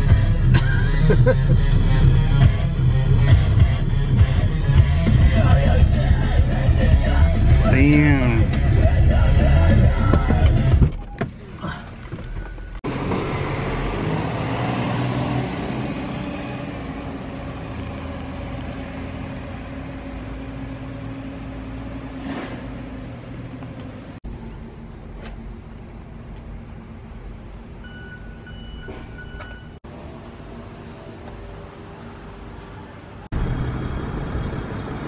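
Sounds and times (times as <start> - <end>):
vehicle engine running: 0.0 - 14.5, 29.8 - 35.0
high beep: 27.8 - 29.8.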